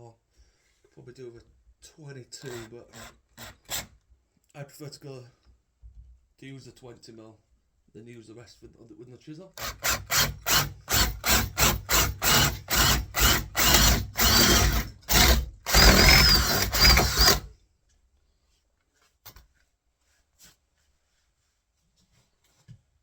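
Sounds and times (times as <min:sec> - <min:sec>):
power drill boring into wood: 0:09.6 - 0:17.5.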